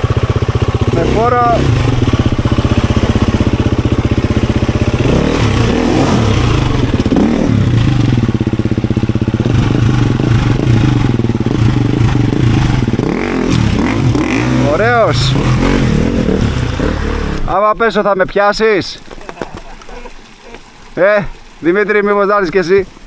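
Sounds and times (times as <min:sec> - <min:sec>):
motorcycle engine revving: 0:00.0 - 0:17.6.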